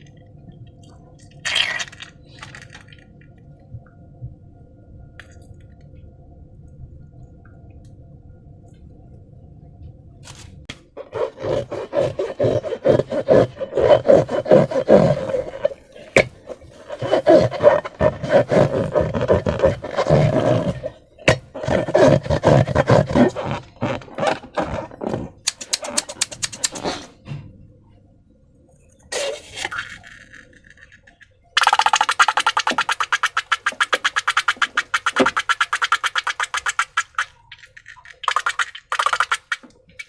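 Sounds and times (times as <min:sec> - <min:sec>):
slime squelching by hand: 0:01.4 - 0:03.0, 0:11.0 - 0:27.1, 0:31.6 - 0:39.7.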